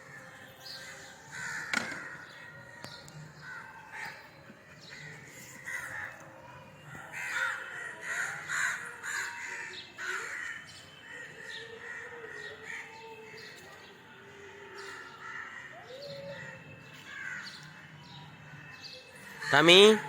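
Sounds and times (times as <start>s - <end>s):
crows cawing: 1.2s - 6.3s, 7.1s - 13.5s, 15.0s - 17.7s, 19.4s - 20.0s.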